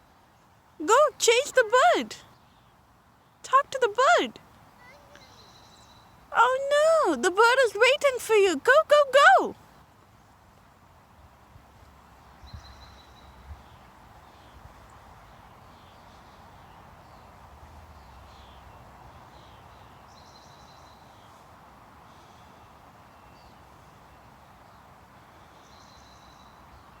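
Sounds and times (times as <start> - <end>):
outdoor background noise: 0.0 - 27.0
small birds chirping: 0.8 - 9.6.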